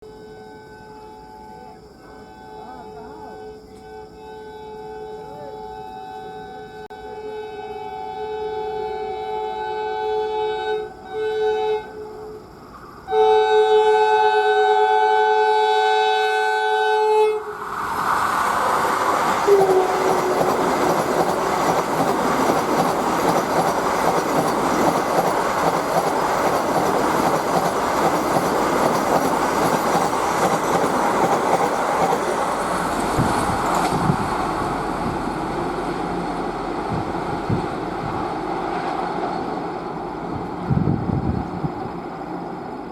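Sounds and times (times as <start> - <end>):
train horn blasts: 0.0 - 12.4, 13.1 - 17.6, 19.4 - 20.8
train passing at speed: 0.4 - 42.9.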